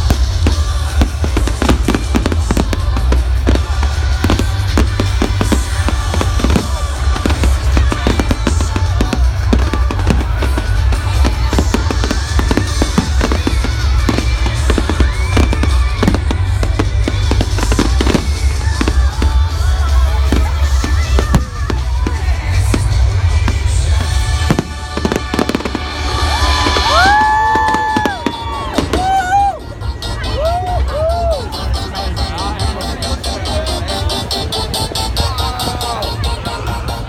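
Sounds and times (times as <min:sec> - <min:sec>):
fireworks bangs and crackles: 0:00.0 - 0:31.0
music playing: 0:00.0 - 0:37.0.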